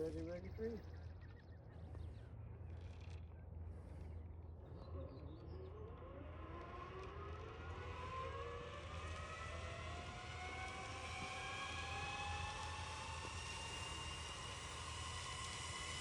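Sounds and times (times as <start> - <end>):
motor whine rising in pitch: 1.8 - 16.0.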